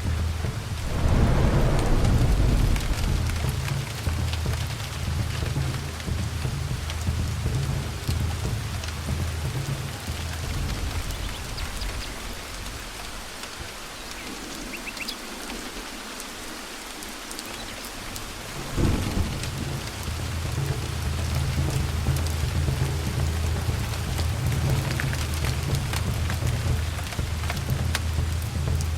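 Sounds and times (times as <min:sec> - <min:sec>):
steady rain: 0:00.0 - 0:28.9
rolling thunder: 0:00.5 - 0:07.5, 0:18.5 - 0:28.0
thunderclap: 0:00.5 - 0:08.2, 0:18.5 - 0:28.9.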